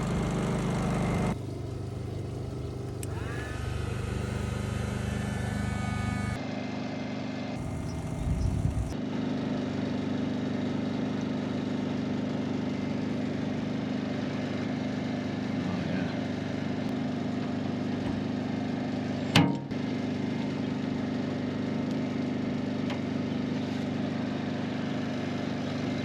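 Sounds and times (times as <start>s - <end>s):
motor hum: 0.0s - 6.4s, 7.6s - 9.0s.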